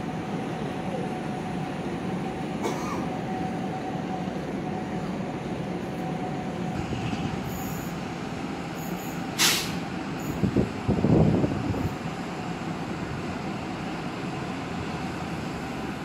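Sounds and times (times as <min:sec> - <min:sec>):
train wheels rumbling on rail: 0:00.0 - 0:16.0
loud hiss: 0:08.9 - 0:09.8.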